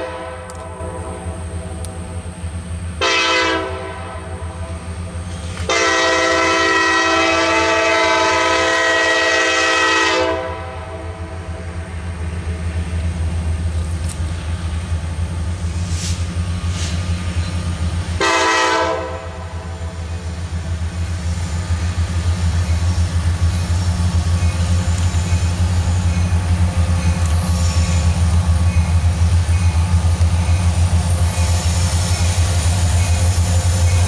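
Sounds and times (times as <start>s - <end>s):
train horn blasts: 0.0s - 2.0s, 3.0s - 11.8s, 18.2s - 20.2s
diesel locomotive engine: 0.0s - 34.0s
rumble of passing rail cars: 0.0s - 34.0s.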